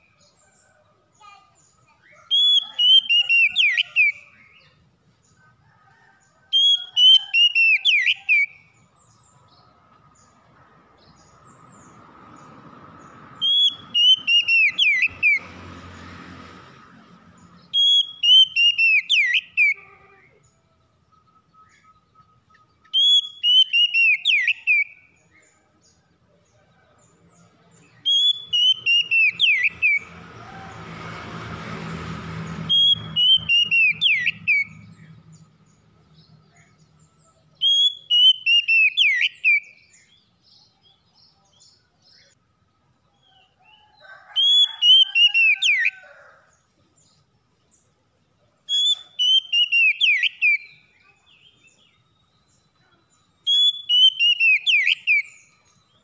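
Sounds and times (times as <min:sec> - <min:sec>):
magpie-robin singing: 0:01.1 - 0:04.8, 0:06.5 - 0:10.4, 0:13.4 - 0:15.4, 0:17.6 - 0:25.9, 0:27.8 - 0:30.1, 0:32.6 - 0:42.4, 0:48.6 - 0:56.0.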